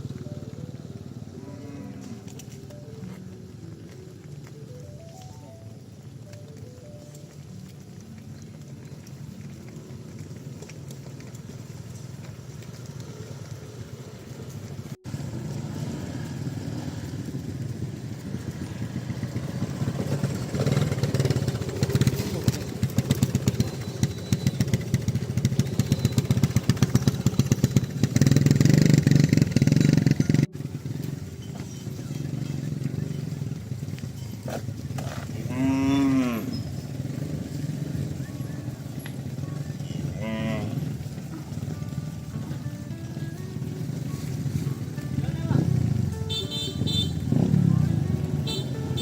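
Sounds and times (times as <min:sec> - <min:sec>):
motor vehicle engine running: 0:00.0 - 0:49.0
cow mooing: 0:01.3 - 0:02.4, 0:35.0 - 0:36.7, 0:39.7 - 0:41.0.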